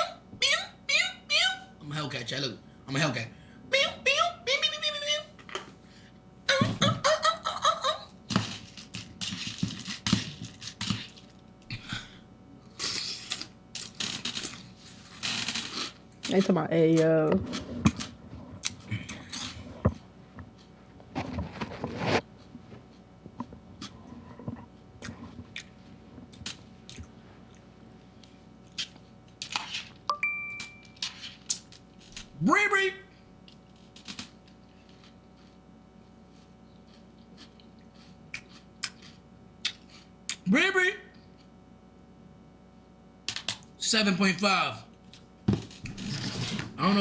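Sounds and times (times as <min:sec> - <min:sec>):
person chewing crunchy cereal: 0:12.6 - 0:16.0, 0:17.6 - 0:19.8, 0:25.0 - 0:29.8, 0:36.3 - 0:40.4
high beep: 0:30.1 - 0:31.0.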